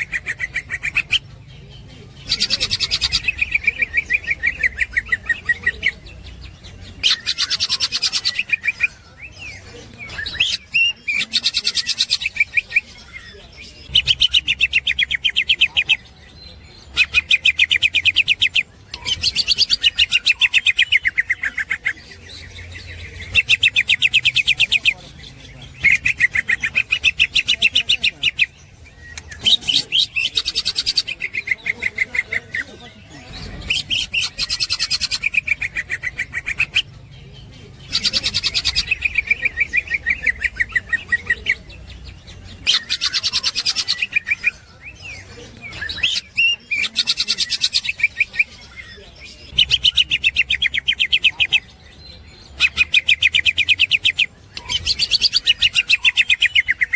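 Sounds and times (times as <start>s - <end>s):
bird chattering song: 0.0s - 56.9s.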